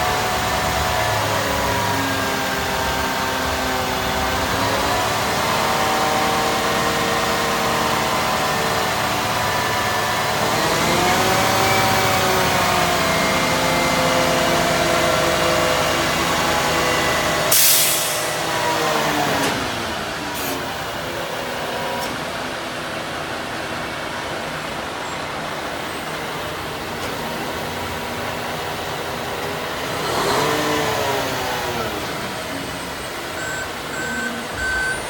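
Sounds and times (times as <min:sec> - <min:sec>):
truck engine running: 0:00.0 - 0:35.0
sharp air hiss: 0:17.5 - 0:18.4.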